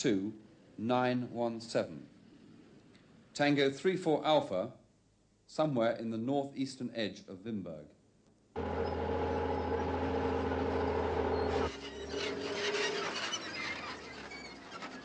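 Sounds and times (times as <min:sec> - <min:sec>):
vehicle engine running: 0:08.6 - 0:14.5.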